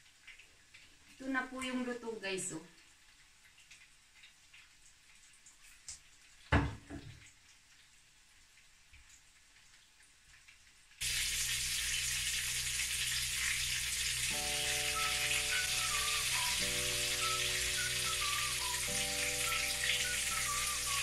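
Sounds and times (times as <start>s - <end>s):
deep-frying sizzle in oil: 0.0s - 21.0s
faint music: 14.3s - 21.0s.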